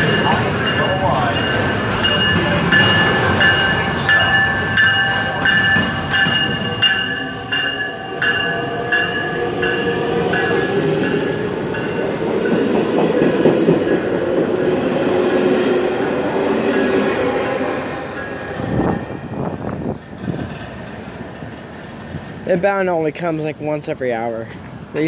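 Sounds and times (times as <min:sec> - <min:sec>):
train bell ringing: 0:00.0 - 0:14.8, 0:16.6 - 0:20.0
train cars rumbling and clattering: 0:00.0 - 0:25.0.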